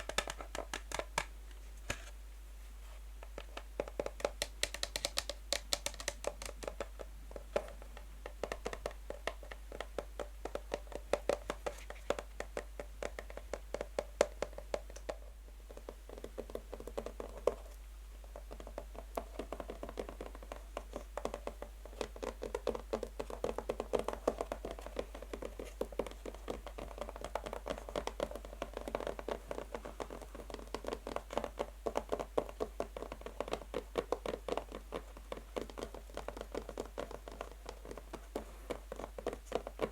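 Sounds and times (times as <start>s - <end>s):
fingernails tapping on a box: 3.3s - 7.0s.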